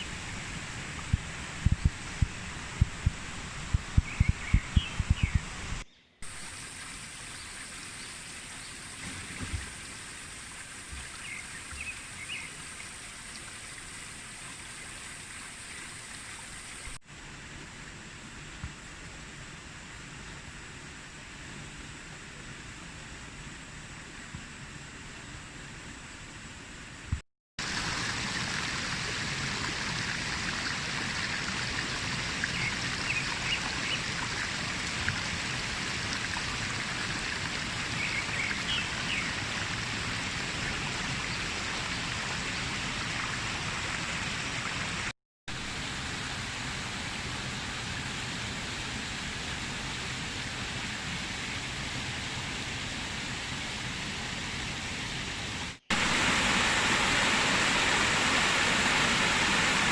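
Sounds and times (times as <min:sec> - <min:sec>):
water rushing over rocks: 0:27.6 - 0:51.8, 0:55.1 - 0:59.9.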